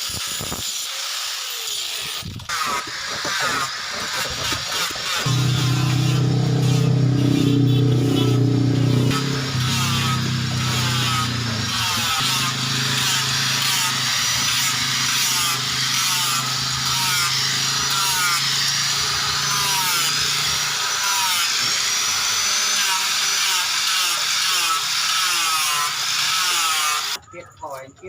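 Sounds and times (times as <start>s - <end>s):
steel blade rasping strokes: 1.4s - 21.8s.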